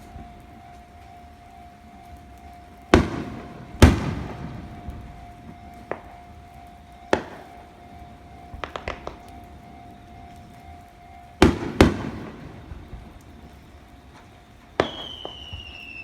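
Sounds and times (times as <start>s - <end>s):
crackling pops: 2.2s - 7.7s, 8.5s - 9.6s, 11.4s - 16.0s
fireworks bangs: 2.9s - 6.1s, 8.5s - 9.3s, 11.4s - 16.0s.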